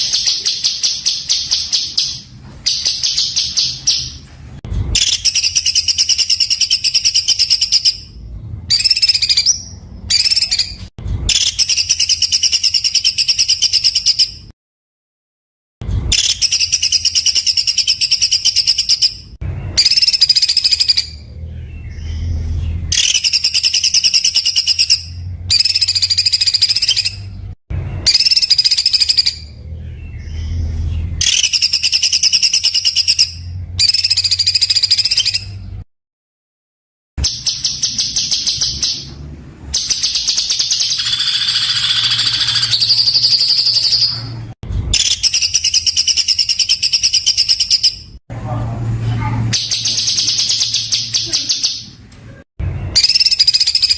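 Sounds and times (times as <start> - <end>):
songbird rapid rough notes: 39.8 - 44.6.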